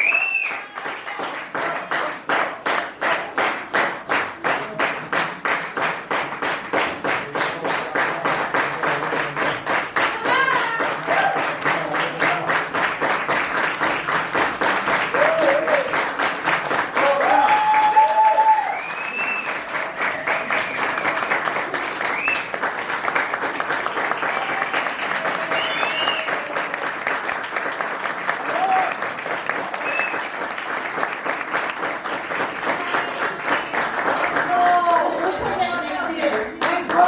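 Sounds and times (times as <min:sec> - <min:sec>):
crowd whoops and shouts: 0:00.0 - 0:01.0, 0:15.1 - 0:16.0, 0:17.0 - 0:21.2, 0:24.1 - 0:26.7, 0:28.4 - 0:29.0
audience clapping in unison: 0:00.0 - 0:37.0.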